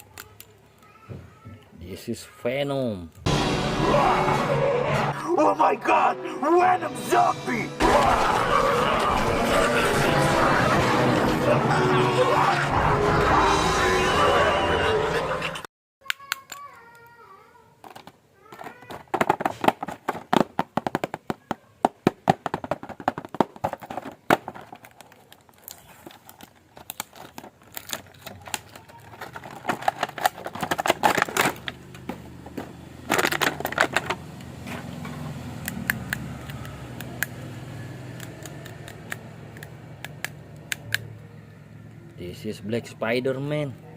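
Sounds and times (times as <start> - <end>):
plastic toy clicks and taps: 16.0 - 17.2, 38.2 - 41.1
plastic crinkling: 22.4 - 34.2.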